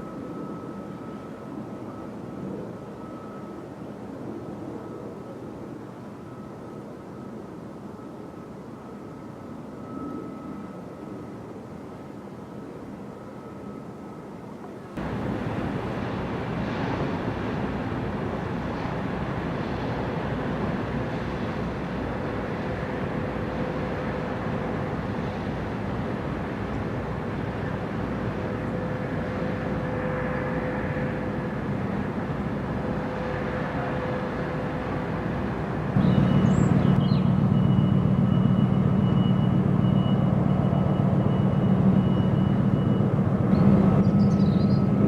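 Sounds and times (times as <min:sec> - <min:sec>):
engine rumble: 0:14.6 - 0:45.0
deep hum: 0:36.0 - 0:40.8.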